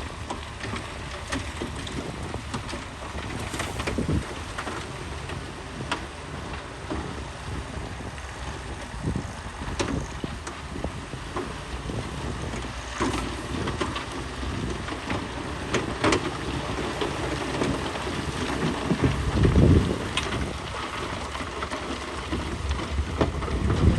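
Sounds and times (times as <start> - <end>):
soil and rock clattering: 0.0 - 7.0
heavy machinery engine rumble: 0.0 - 23.9.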